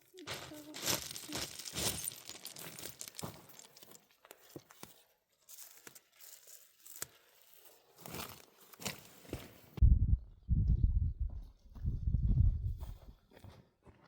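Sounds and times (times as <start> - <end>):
rustling and crinkling: 0.0 - 9.8.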